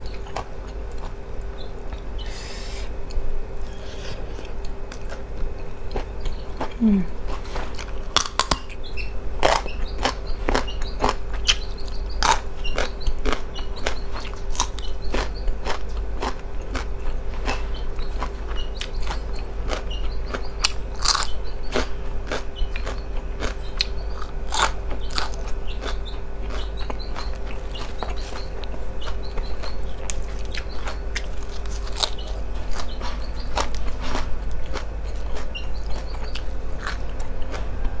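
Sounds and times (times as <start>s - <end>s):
steady low hum: 0.0s - 38.0s
close chewing with wet mouth clicks: 18.2s - 33.0s.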